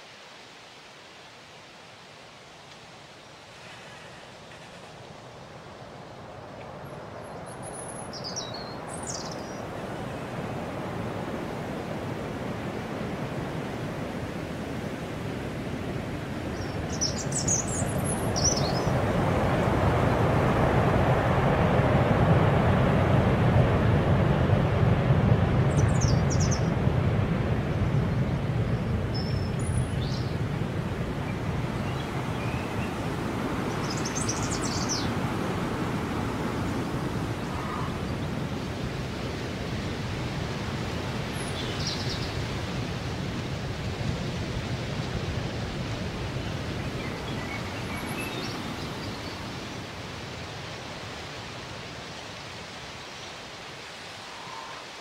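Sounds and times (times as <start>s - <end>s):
faint bird chirps: 36.8s - 38.2s, 54.2s - 55.0s.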